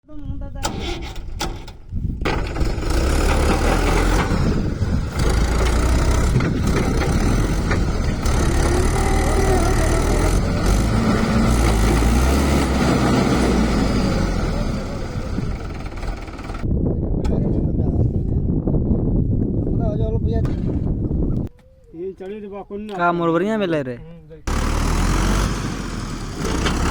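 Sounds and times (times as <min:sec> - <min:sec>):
tractor engine straining: 0:00.6 - 0:16.7, 0:24.5 - 0:26.9.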